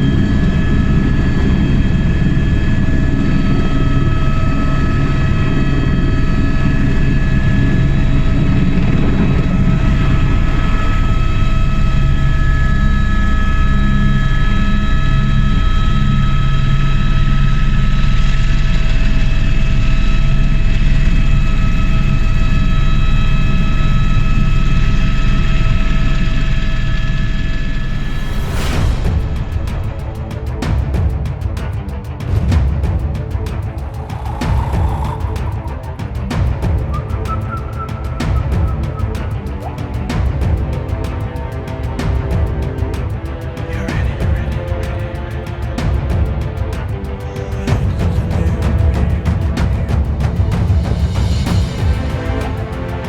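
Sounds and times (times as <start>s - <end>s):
road and wind rumble: 28.4s - 36.9s.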